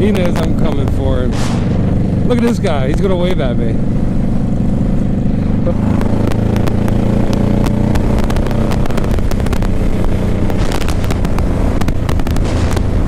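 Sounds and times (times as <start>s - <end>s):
motorcycle engine running: 0.0s - 13.0s
short clicks and crackles: 5.9s - 12.9s.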